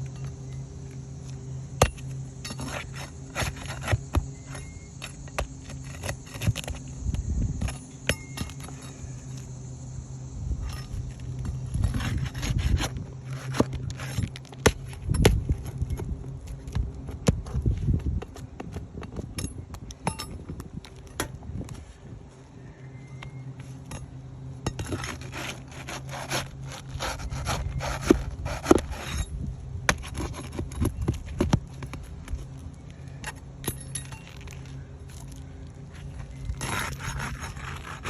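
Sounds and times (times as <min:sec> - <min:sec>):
steady low hum: 0:00.0 - 0:38.0
scraping on roofing shingles: 0:02.5 - 0:06.9, 0:11.4 - 0:15.7, 0:24.8 - 0:32.3, 0:35.9 - 0:38.0.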